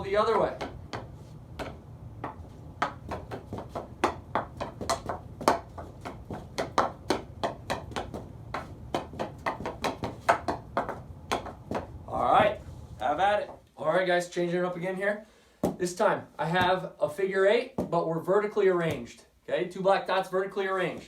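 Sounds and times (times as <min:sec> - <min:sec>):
hockey stick tapping puck: 0:00.0 - 0:12.5.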